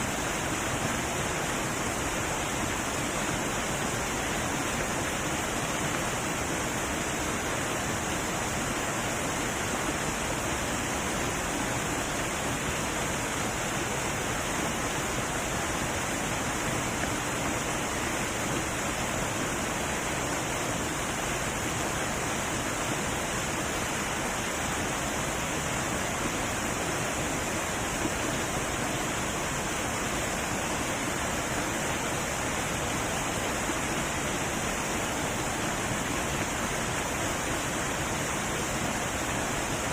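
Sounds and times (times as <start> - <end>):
heavy waterfall rushing: 0.0 - 39.9.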